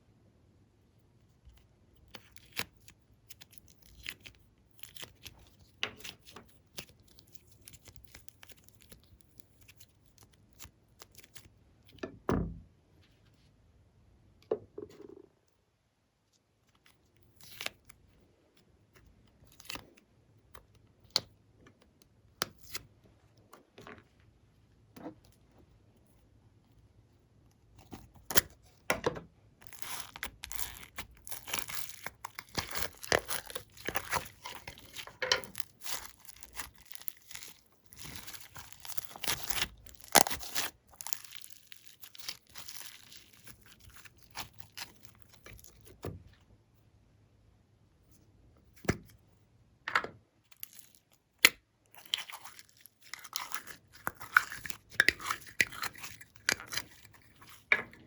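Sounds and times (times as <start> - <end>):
slime crackling and squelching: 29.6 - 46.1, 50.5 - 57.7.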